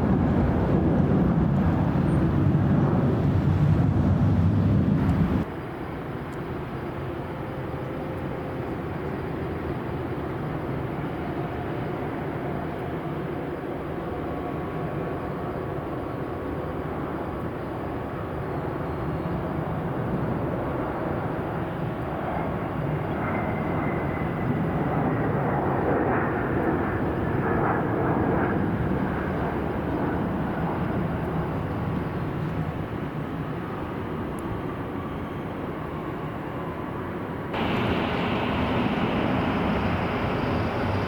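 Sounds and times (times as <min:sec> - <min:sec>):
jet engines rushing: 0:00.0 - 0:07.0, 0:19.5 - 0:41.0
faint high whine: 0:37.6 - 0:41.0.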